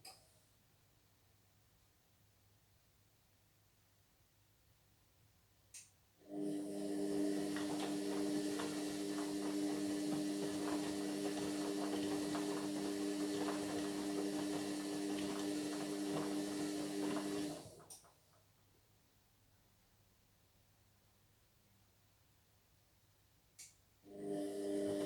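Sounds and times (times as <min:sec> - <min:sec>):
washing machine drum humming: 0:06.5 - 0:17.9.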